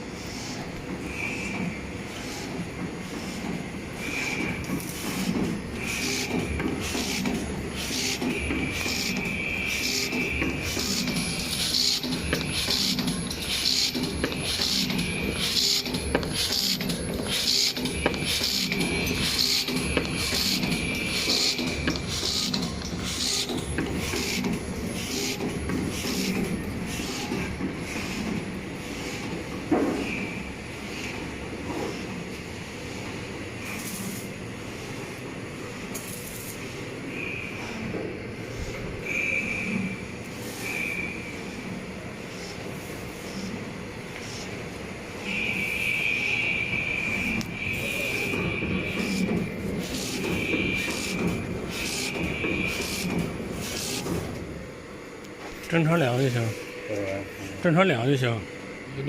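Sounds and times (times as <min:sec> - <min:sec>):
wire mesh machine humming: 0:00.4 - 0:32.9, 0:38.4 - 0:59.0
machine clattering: 0:04.3 - 0:28.4, 0:47.9 - 0:54.4.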